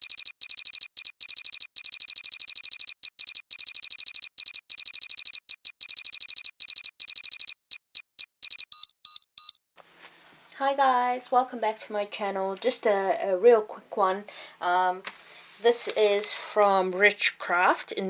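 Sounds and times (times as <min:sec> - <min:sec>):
short electronic beeps: 0:00.0 - 0:09.6.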